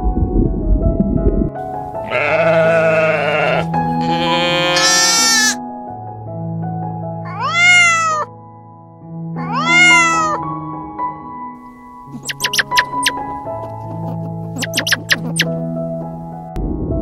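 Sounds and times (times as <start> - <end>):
soft background music: 0.0 - 17.0
animal calls: 4.4 - 5.6, 7.3 - 8.3, 9.4 - 10.4, 12.1 - 15.6.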